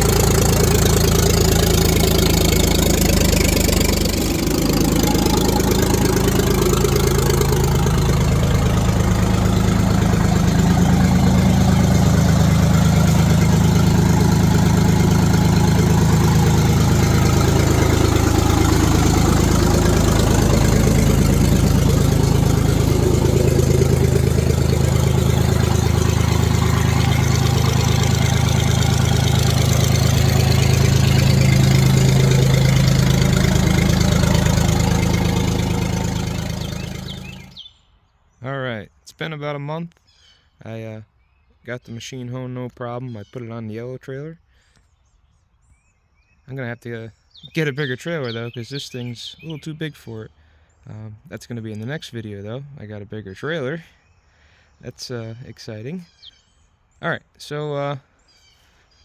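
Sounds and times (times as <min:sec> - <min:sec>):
diesel engine idling: 0:00.0 - 0:37.6.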